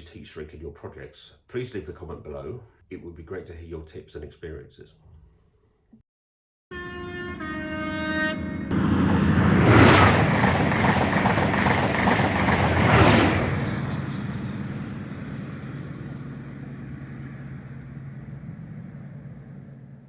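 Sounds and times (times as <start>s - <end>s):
train horn: 6.7s - 11.2s
train passing at speed: 6.8s - 20.0s.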